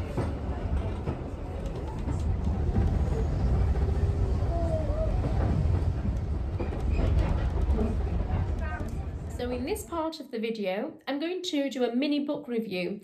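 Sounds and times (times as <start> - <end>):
train carriage rumbling on track: 0.0 - 10.0.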